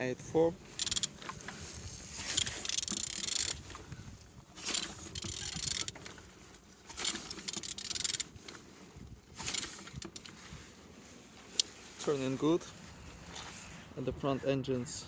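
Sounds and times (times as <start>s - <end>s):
engine crank scraping by hand: 0.6s - 12.5s.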